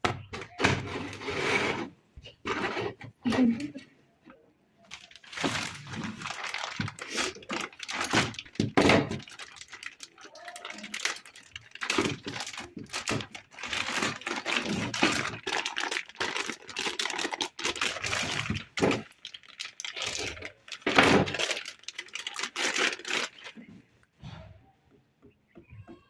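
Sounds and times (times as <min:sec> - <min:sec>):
packaging crinkling and rustling: 0:04.8 - 0:23.7.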